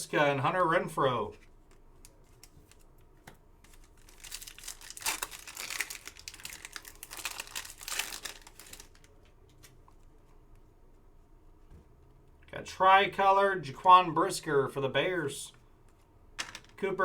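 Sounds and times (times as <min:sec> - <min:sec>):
foil wrapper crinkling and tearing: 0:03.6 - 0:09.8.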